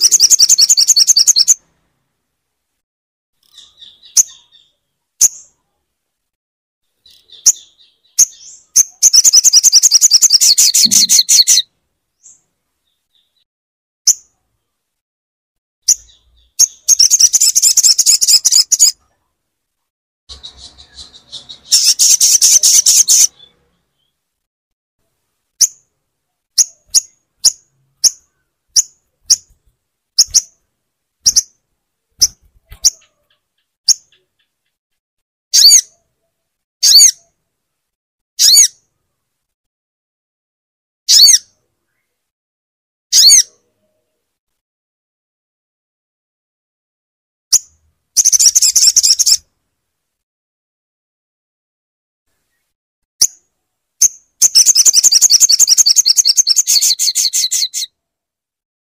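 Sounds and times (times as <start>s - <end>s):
bird chattering trills: 0.0s - 1.6s, 7.1s - 11.6s, 20.3s - 23.6s, 54.4s - 57.9s
bird chips: 7.1s - 11.6s, 20.3s - 23.6s, 32.2s - 34.8s, 48.2s - 49.4s, 54.0s - 57.9s.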